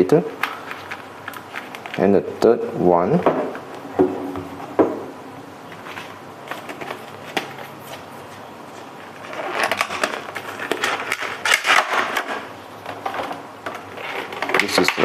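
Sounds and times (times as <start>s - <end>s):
plastic packaging crinkling: 0.5s - 2.1s, 9.0s - 15.0s.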